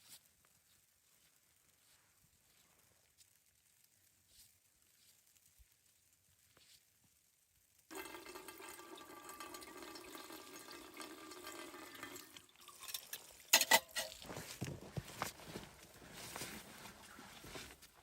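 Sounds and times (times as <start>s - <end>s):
water pouring: 7.9s - 14.7s.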